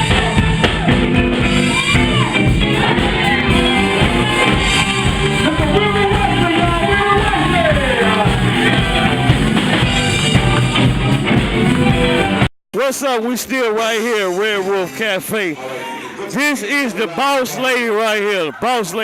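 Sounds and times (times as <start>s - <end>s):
live band with singer: 0.0s - 12.4s.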